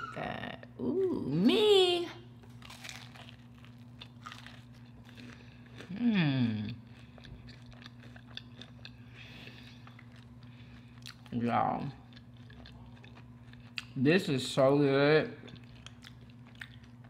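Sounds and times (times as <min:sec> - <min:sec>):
crunching bite and chewing: 0:02.5 - 0:14.0, 0:15.4 - 0:17.0
person humming mmm: 0:05.9 - 0:06.8.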